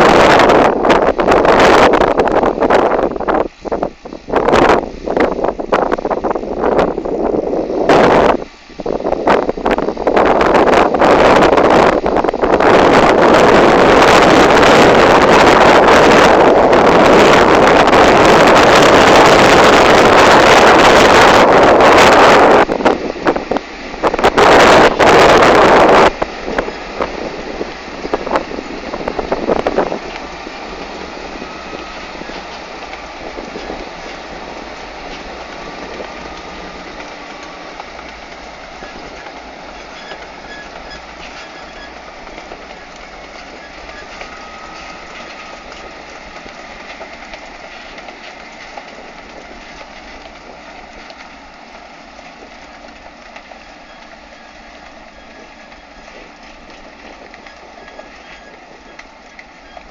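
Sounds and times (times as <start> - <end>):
farm machinery clatter: 9.6 - 59.9
faint machinery squeals: 31.4 - 32.6, 38.7 - 46.0, 52.6 - 59.9.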